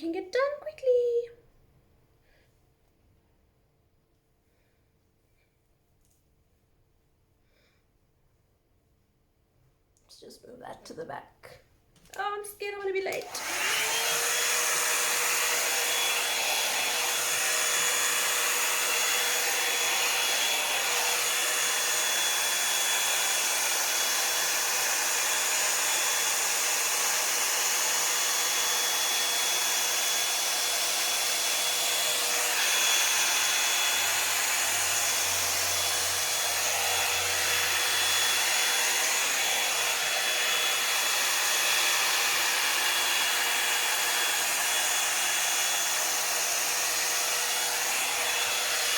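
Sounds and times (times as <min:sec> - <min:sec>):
hair dryer blowing air: 0:12.7 - 0:48.9.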